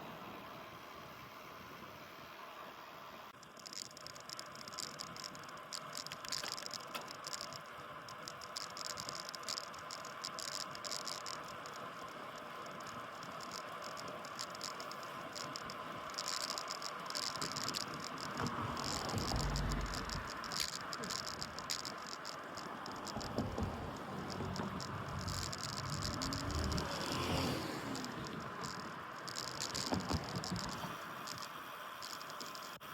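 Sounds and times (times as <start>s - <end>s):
bike rattling and ticking: 3.4s - 32.8s
wind and road noise: 3.5s - 32.8s
low rumble: 18.4s - 20.4s, 23.1s - 28.6s.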